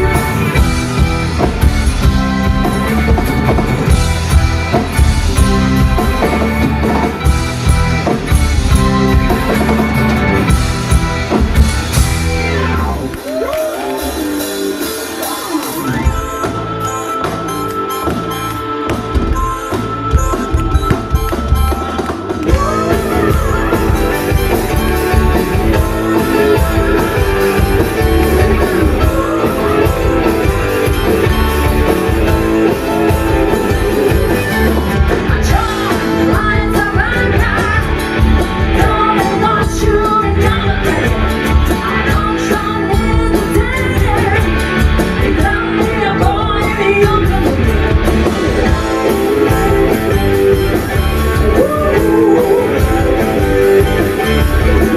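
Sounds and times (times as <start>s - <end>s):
rock band playing live: 0.0s - 54.9s
person singing: 21.6s - 54.9s.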